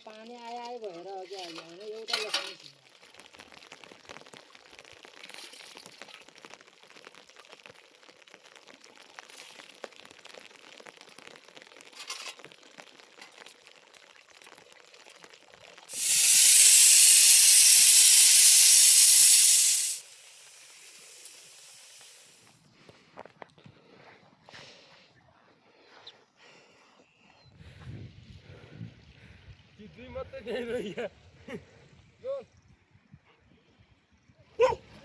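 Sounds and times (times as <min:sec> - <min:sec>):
loud steady hiss: 0:15.9 - 0:22.5.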